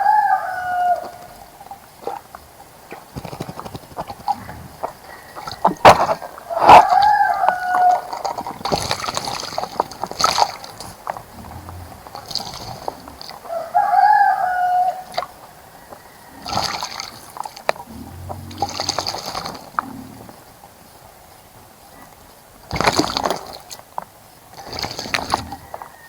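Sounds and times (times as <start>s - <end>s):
birds splashing in water: 0.0s - 21.2s, 22.6s - 26.0s
bird calling: 3.2s - 8.5s.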